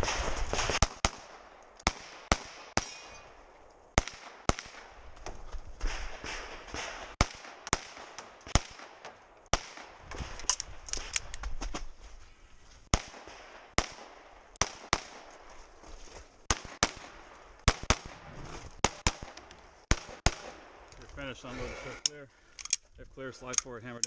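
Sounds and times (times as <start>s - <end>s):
pistol shots: 0.0s - 3.3s, 4.0s - 5.0s, 5.8s - 10.0s, 12.9s - 15.3s, 16.5s - 18.2s, 18.8s - 20.8s.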